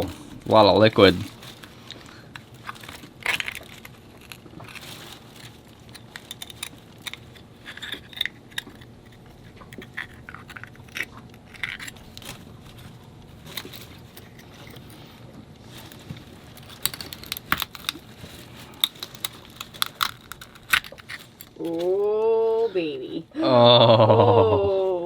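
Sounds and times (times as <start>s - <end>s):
knife scraping clam shell: 0.0s - 22.0s.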